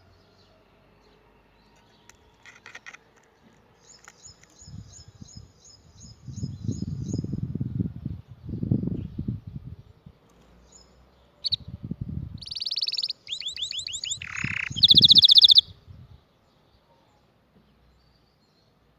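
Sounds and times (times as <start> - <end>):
canary singing: 10.7 - 11.7, 12.4 - 15.7.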